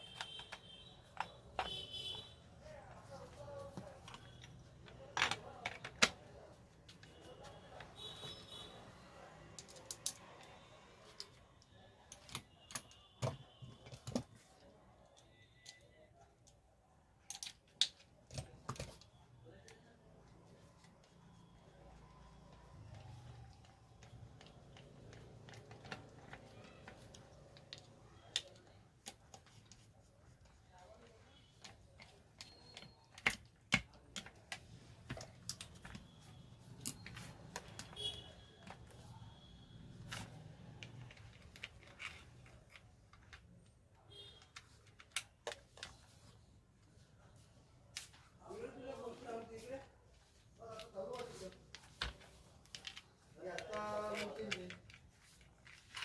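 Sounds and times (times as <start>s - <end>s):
clicks and taps of tools: 0.0s - 2.2s
metal parts clicking and knocking: 9.6s - 10.5s.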